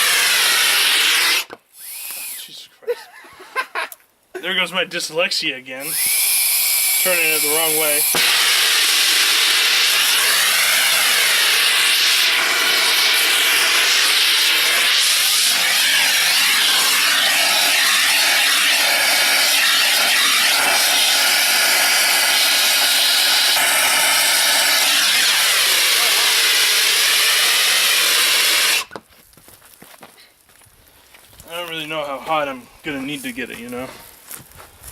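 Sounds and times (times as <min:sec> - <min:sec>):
blow torch flame hissing: 0:00.0 - 0:02.5, 0:05.9 - 0:28.9.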